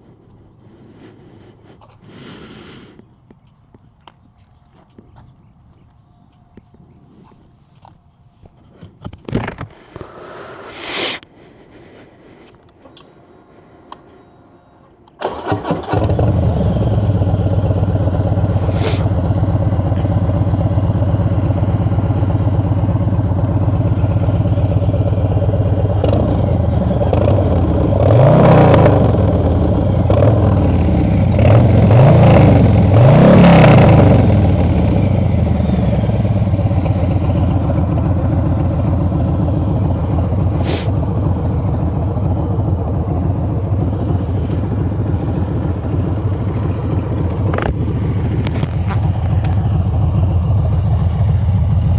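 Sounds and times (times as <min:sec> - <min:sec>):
motorcycle engine idling and revving: 0:14.8 - 0:51.9.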